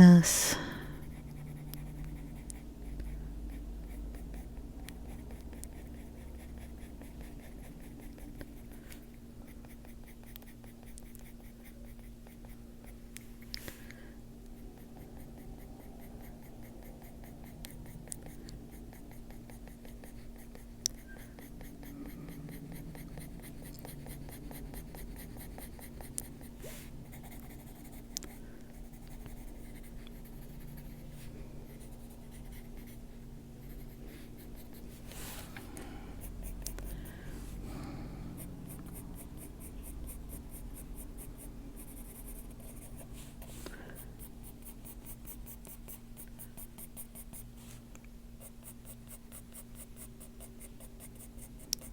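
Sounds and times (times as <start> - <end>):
pencil scratching on paper: 1.0 - 8.8, 14.8 - 35.2, 38.4 - 47.4.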